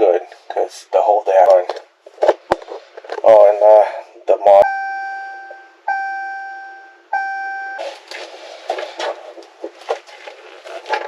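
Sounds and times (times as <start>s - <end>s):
rustling: 7.8s - 11.0s.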